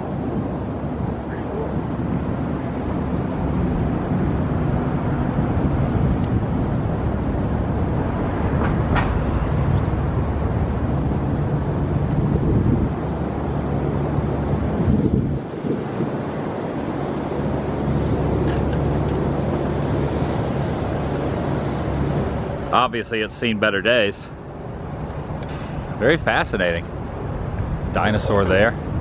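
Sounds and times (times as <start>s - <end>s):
wavering low hum: 0.0s - 22.7s
wind: 0.0s - 29.0s.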